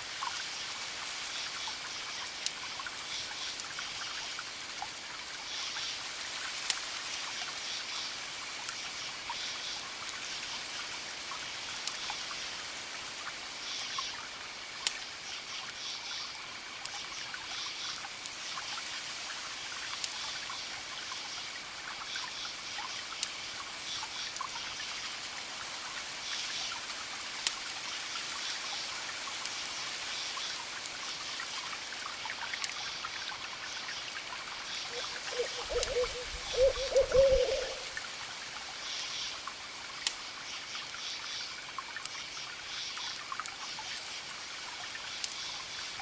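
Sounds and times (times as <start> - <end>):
campfire crackling: 0.1 - 9.0, 9.6 - 20.2, 21.0 - 45.9
crickets chirping: 32.5 - 38.2
high insect trill: 34.7 - 38.0.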